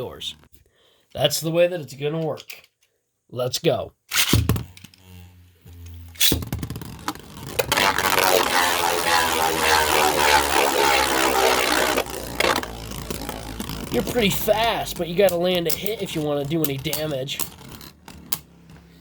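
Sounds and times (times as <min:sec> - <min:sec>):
spinning tops scraping whir: 0:04.1 - 0:19.0.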